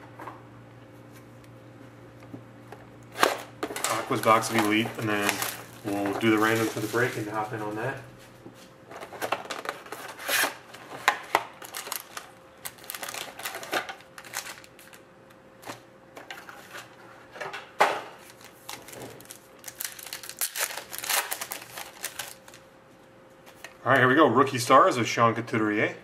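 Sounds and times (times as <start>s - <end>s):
wrapper crinkling and rustling: 3.2s - 8.0s, 8.9s - 15.0s, 18.2s - 22.6s.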